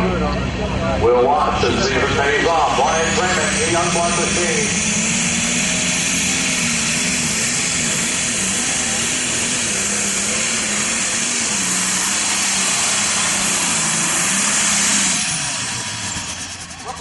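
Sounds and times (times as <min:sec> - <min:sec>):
diesel tractor engine at full throttle: 0:00.0 - 0:17.0
turbocharger and exhaust hiss: 0:01.4 - 0:17.0.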